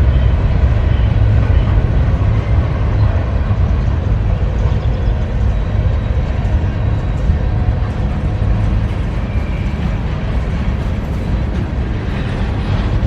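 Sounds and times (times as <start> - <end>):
freight train cars rolling on rails: 0.0 - 13.0.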